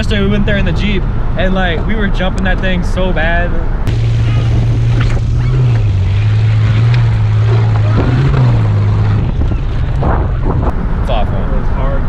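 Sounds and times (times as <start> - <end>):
vehicle engine droning: 0.0 - 12.0
wind noise on microphone: 3.8 - 12.0.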